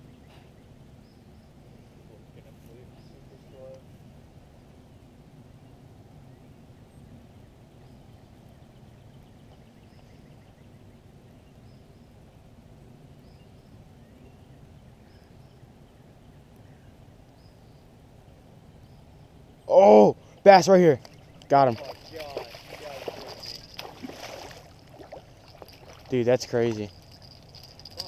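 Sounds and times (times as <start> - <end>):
birds chirping: 0.0 - 3.9, 13.2 - 28.0
low outdoor rumble: 0.0 - 28.0.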